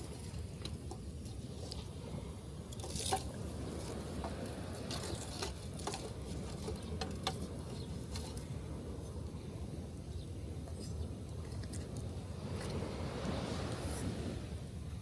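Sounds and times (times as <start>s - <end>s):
surf breaking on beach: 12.3s - 14.8s.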